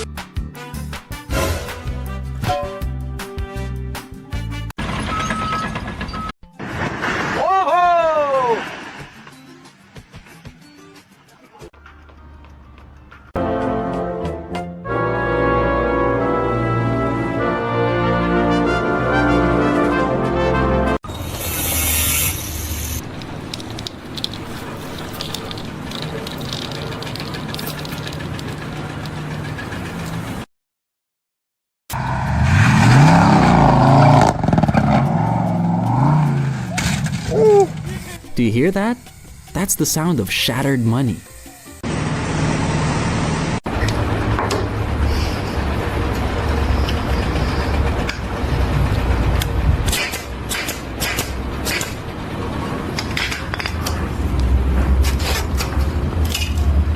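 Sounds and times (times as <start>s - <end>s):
vehicle engine running: 22.3s - 30.5s, 41.5s - 56.9s
engine revving up: 31.9s - 38.2s.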